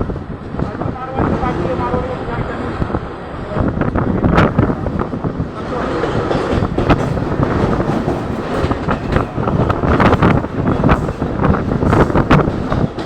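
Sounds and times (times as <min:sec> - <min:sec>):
train rumbling: 0:00.0 - 0:13.0
wheels clacking over rails: 0:04.3 - 0:13.0.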